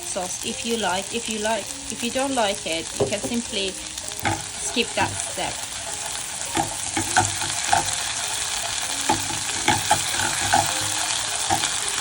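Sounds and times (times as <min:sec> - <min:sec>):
roux sizzling in a pan: 0:00.0 - 0:12.0
utensil scraping a pan: 0:03.1 - 0:12.0.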